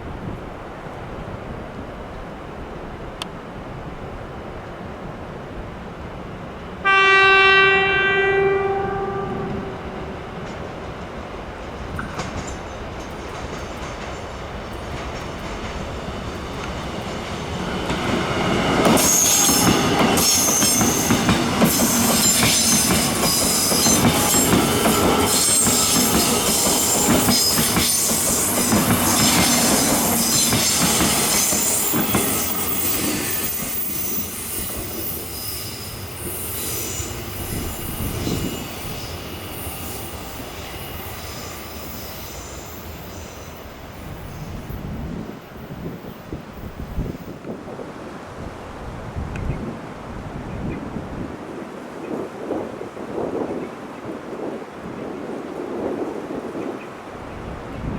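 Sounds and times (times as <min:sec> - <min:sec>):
electric train passing: 0:00.6 - 0:47.5
train clattering over rails: 0:10.1 - 0:47.3.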